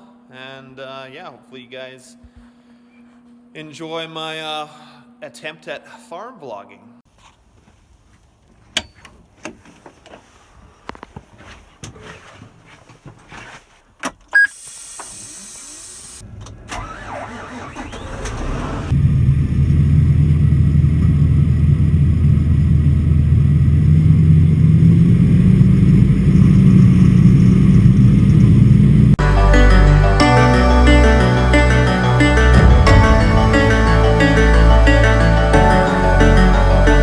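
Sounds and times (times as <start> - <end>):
diesel engine cranking: 15.1 - 22.9
tractor starter clicks: 16.3 - 18.9
diesel tractor engine running: 16.3 - 37.0.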